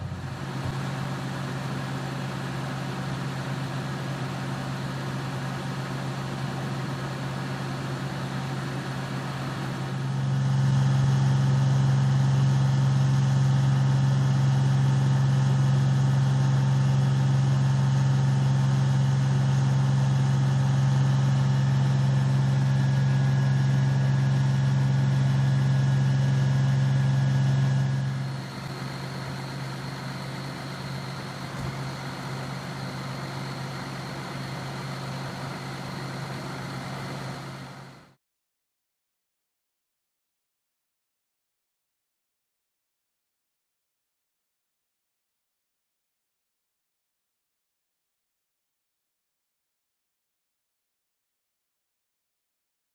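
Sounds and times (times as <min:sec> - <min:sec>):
diesel engine idling: 0:27.9 - 0:38.0.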